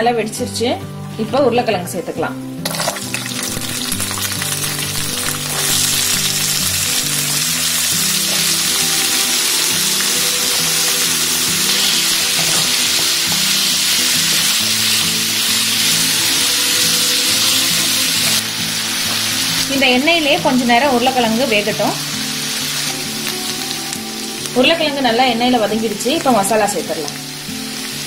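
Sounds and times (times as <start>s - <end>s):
background music: 0.0s - 28.0s
potatoes sizzling in hot oil: 2.5s - 28.0s.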